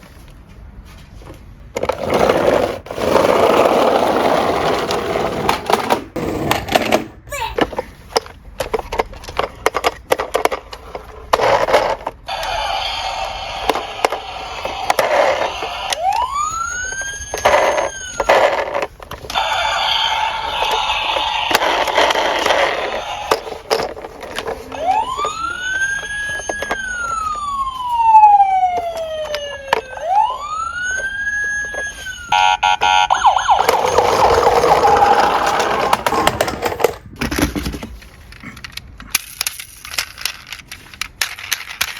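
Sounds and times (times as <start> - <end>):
toy cars rattling down a slope: 8.6 - 27.4, 33.6 - 41.9
police siren wail: 12.3 - 23.7, 24.6 - 36.1.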